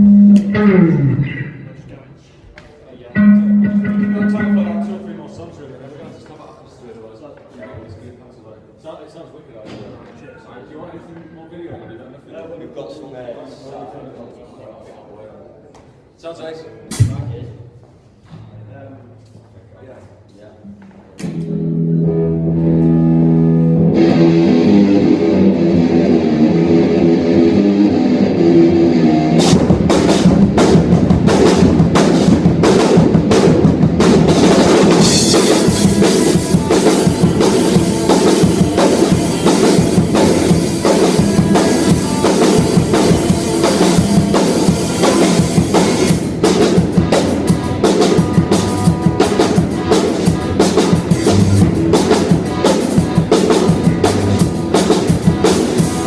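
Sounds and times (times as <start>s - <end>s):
live rock band playing: 0.0s - 1.7s, 3.1s - 5.4s, 21.2s - 56.0s
guitar and bass notes: 0.0s - 1.9s, 3.1s - 5.5s, 20.7s - 56.0s
drum kit: 3.1s - 5.4s, 16.9s - 17.6s, 21.1s - 56.0s
cymbals crashing: 3.2s - 5.4s, 23.1s - 56.0s.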